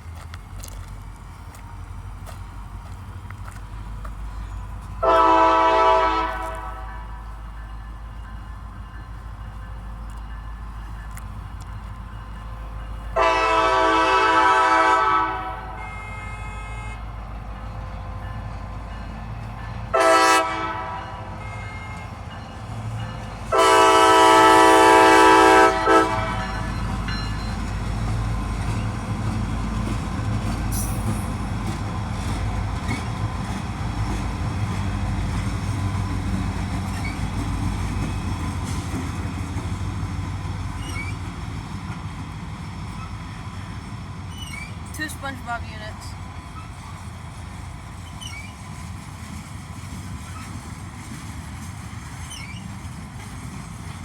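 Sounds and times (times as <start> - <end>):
freight train engines rumbling: 0.0 - 54.0
diesel locomotive horn: 4.5 - 7.5, 13.1 - 17.4, 19.6 - 22.4, 23.4 - 27.8.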